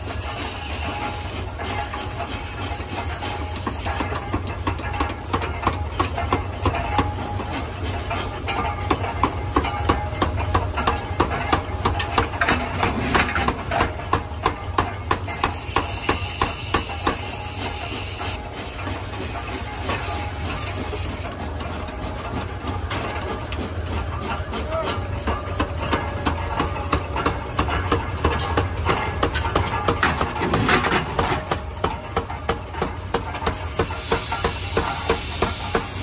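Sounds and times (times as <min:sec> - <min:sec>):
forging hammer striking metal: 0:24.2 - 0:36.0.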